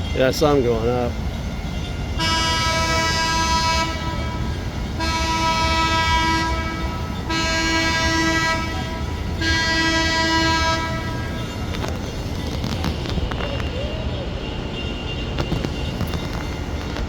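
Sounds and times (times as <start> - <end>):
horn blasts: 2.2 - 11.6.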